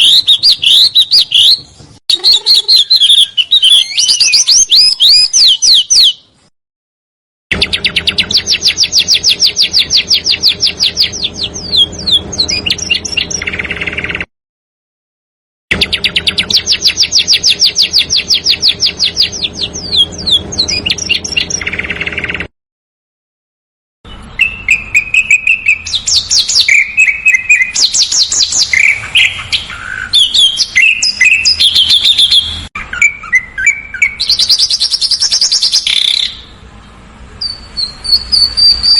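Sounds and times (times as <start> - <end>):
songbird singing: 0.0 - 6.5, 7.5 - 14.3, 15.7 - 22.5, 24.1 - 38.9.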